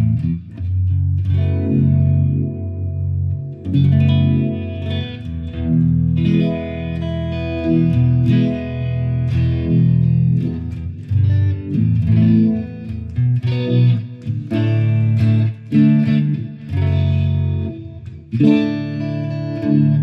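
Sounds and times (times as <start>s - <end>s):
electric guitar notes and chords: 0.0s - 20.0s.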